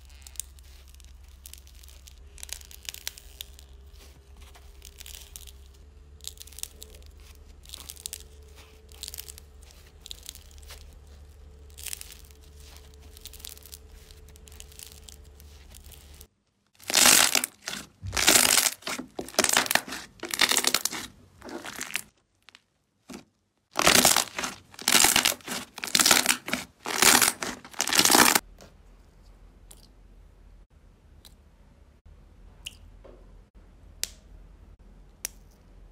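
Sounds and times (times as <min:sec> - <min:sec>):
slime squishing: 0:00.0 - 0:28.4
loud quick crunching: 0:16.8 - 0:22.1, 0:23.8 - 0:28.4.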